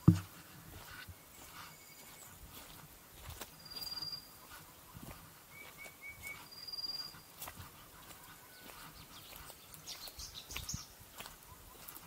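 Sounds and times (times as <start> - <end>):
high bird whistle: 3.6 - 4.3, 5.5 - 7.1.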